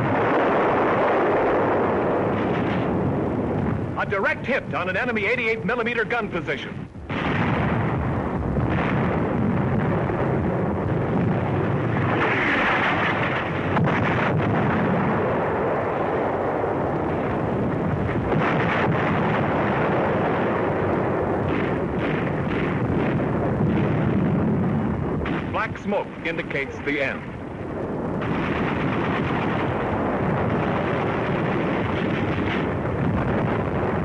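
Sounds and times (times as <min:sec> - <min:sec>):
explosions and artillery fire: 0:00.0 - 0:34.0
gunfire cracks: 0:07.1 - 0:10.4, 0:16.9 - 0:24.6, 0:25.2 - 0:34.0.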